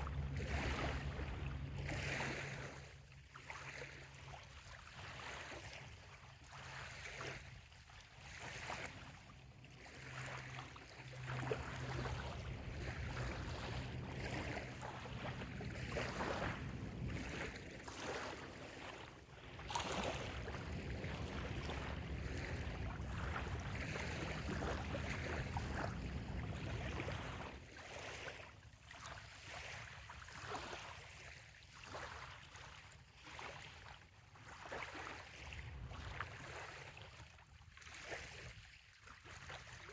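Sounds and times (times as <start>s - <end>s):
low steady hum: 0.0s - 2.8s, 9.4s - 27.7s
water lapping at a sandy shore: 0.0s - 39.9s.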